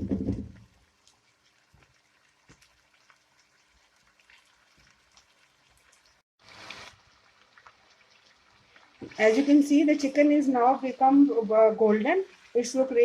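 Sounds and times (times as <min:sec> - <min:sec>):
small crackles: 0:00.0 - 0:09.6
chicken sizzling in oil: 0:00.6 - 0:13.0.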